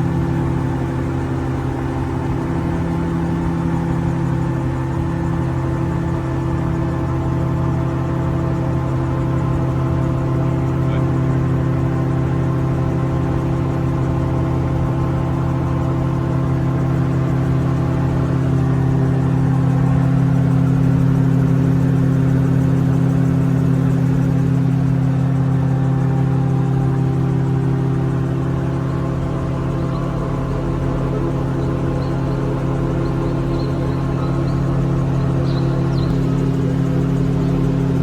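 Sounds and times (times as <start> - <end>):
aircraft engine and propeller: 0.0 - 38.0.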